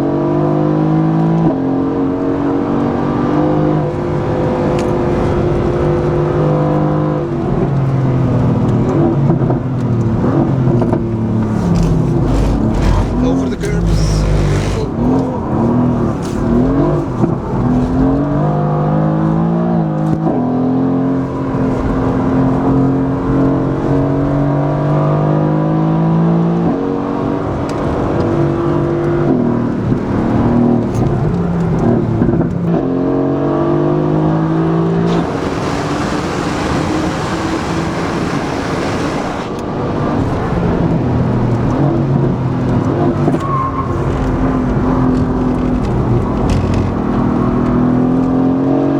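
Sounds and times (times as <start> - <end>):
sports car engine revving: 0.0 - 48.9
rushing hiss: 35.1 - 39.5.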